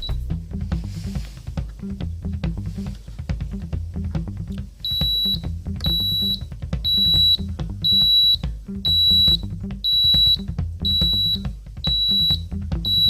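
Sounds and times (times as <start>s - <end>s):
background music with a beat: 0.0s - 13.0s
high electronic beeps: 4.9s - 13.0s.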